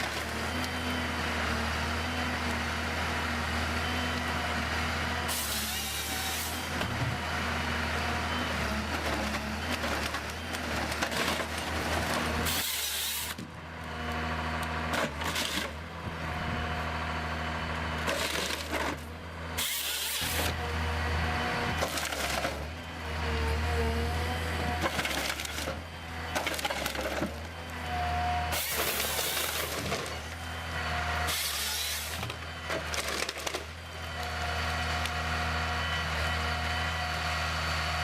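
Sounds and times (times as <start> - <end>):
heavy machine engine running: 0.0 - 38.0.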